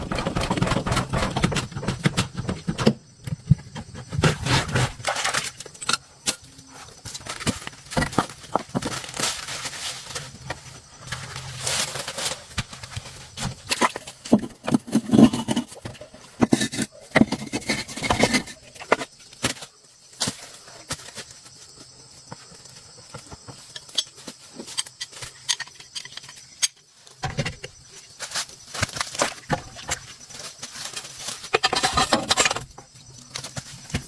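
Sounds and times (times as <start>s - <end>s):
hand tools knocking and scraping: 0.0s - 19.6s, 30.8s - 34.0s.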